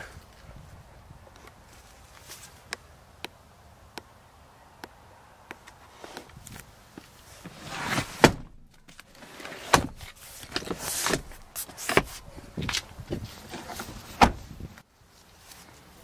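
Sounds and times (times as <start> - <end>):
rustling: 5.8 - 16.0
car door and seat clunks: 7.9 - 9.0, 9.6 - 14.5.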